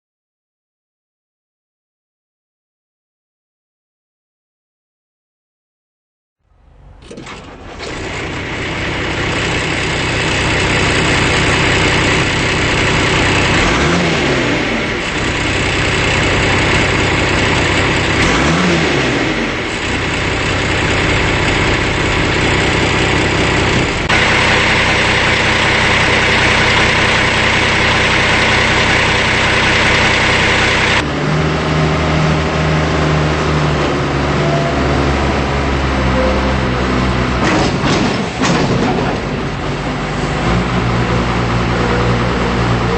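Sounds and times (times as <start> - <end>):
backhoe diesel engine running: 6.4 - 42.9
high-pitched whine: 8.3 - 33.4.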